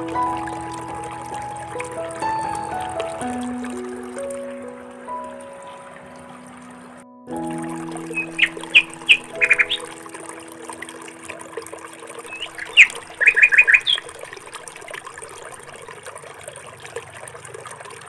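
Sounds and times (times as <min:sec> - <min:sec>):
small birds chirping: 0:08.0 - 0:10.0, 0:12.2 - 0:14.6.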